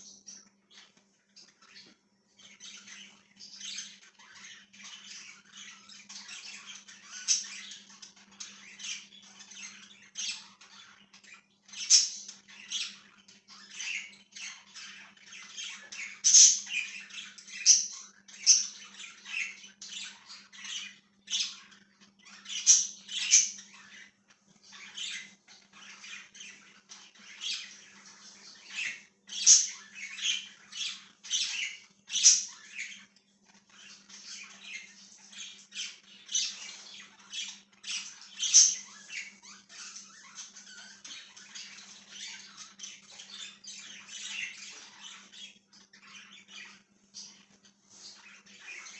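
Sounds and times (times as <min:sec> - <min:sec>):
budgies chirping and chattering: 0:00.0 - 0:48.9.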